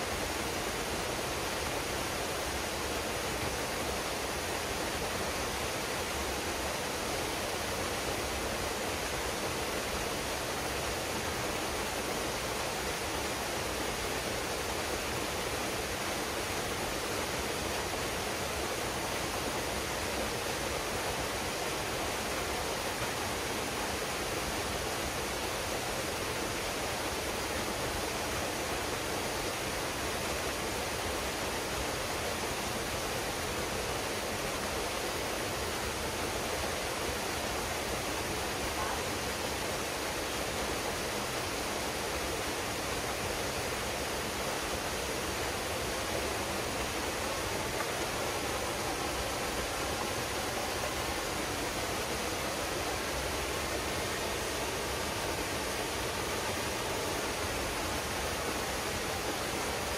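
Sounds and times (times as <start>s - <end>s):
waterfall pouring into a pool: 0.0s - 59.9s.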